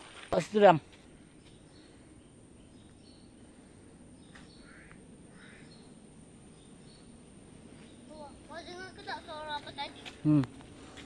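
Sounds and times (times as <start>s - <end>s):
small birds chirping: 0.6s - 11.0s
low bird call: 4.2s - 6.0s.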